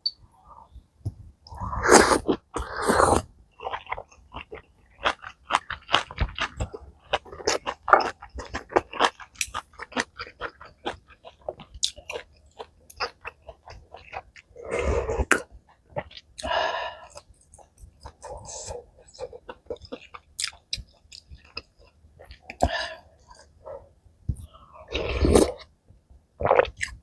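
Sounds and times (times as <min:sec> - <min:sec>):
chewing and crunching: 0:03.6 - 0:16.5, 0:17.1 - 0:23.8.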